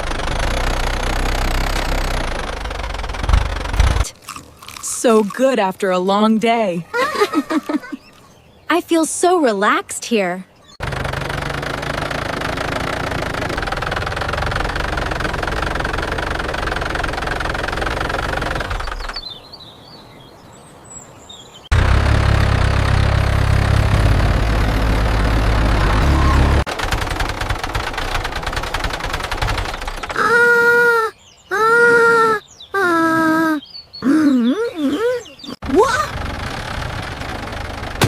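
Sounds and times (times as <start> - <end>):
tractor engine running: 0.0 - 5.7, 10.8 - 19.4, 21.7 - 31.0, 35.6 - 38.0.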